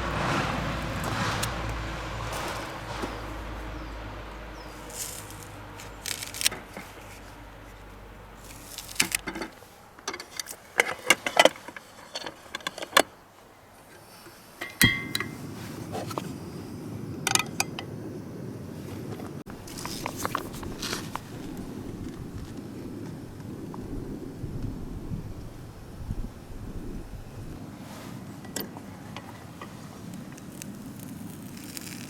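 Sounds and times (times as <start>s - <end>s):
sharp knock with metallic ring: 14.6s - 15.4s.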